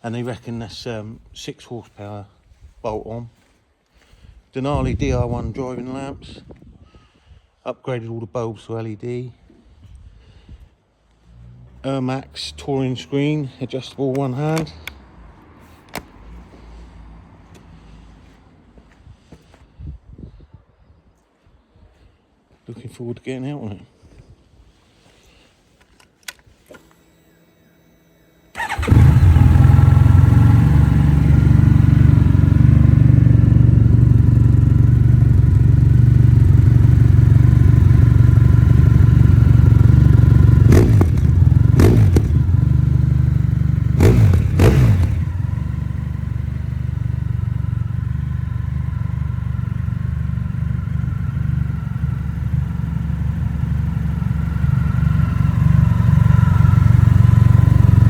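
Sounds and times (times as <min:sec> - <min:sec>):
motorcycle engine idling and blipping: 0:26.6 - 0:58.0.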